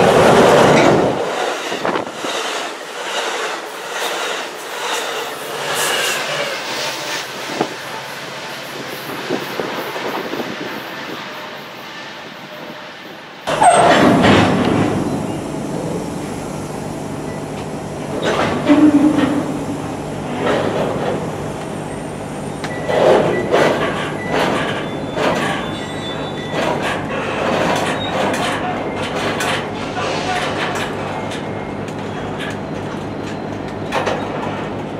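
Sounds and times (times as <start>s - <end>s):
train clanks: 0.0s - 21.9s, 22.5s - 34.9s
train wheels rumbling on rail: 0.0s - 34.9s
wheel squeals: 13.5s - 14.1s, 22.7s - 29.2s.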